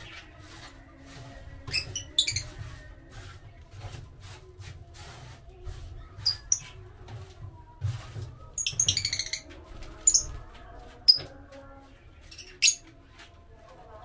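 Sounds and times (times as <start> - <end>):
wood being shaved: 0.0 - 8.2.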